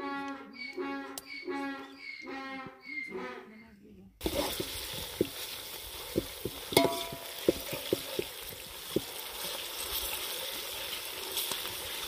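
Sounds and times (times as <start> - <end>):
onions sizzling in a pot: 4.2 - 12.0
pot ringing: 6.7 - 7.8
metal skimmer knocking on pot: 6.7 - 7.9.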